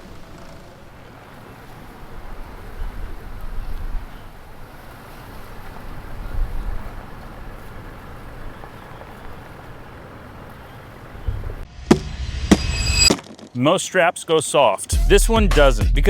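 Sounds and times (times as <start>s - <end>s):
wind on microphone: 5.6s - 8.6s
sharp knocks: 11.8s - 13.6s.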